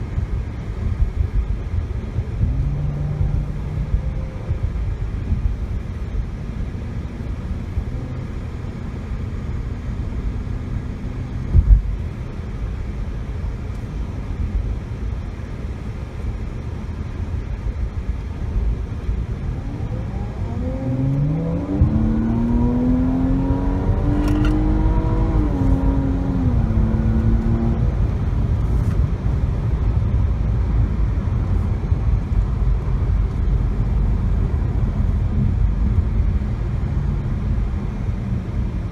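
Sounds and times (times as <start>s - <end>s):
road and tyre rumble: 0.0s - 38.9s
car engine accelerating: 0.8s - 12.1s, 18.2s - 29.0s.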